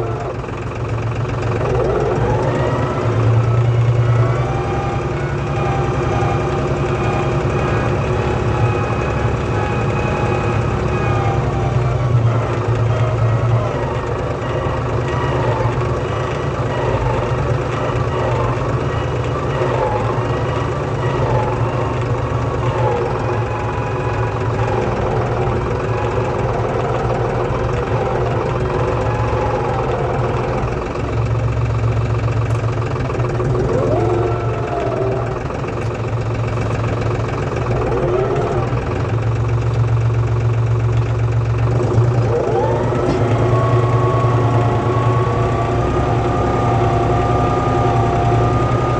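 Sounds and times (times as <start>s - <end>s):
tractor diesel engine: 0.0s - 48.9s.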